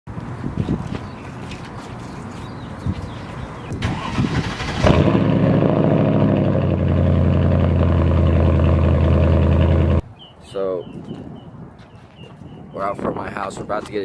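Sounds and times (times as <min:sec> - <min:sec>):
car engine cranking and idling: 0:03.7 - 0:10.0.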